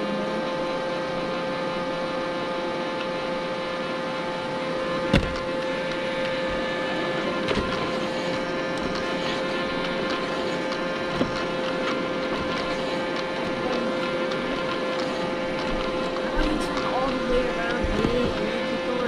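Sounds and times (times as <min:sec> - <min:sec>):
robot vacuum motor hum: 0:00.0 - 0:19.0.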